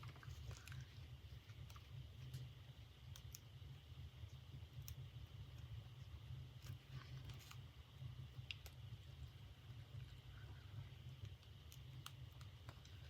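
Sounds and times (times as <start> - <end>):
low steady hum: 0.0 - 13.0
small clicks and taps: 8.4 - 8.8.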